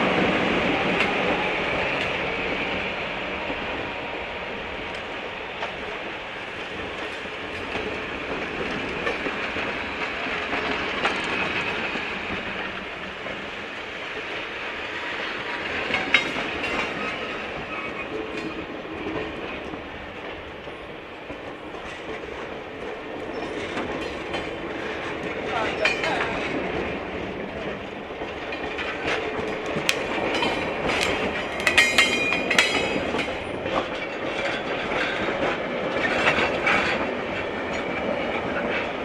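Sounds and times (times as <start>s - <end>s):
train wheels on rails: 0.0s - 39.0s
clicks over rail joints: 28.2s - 37.1s.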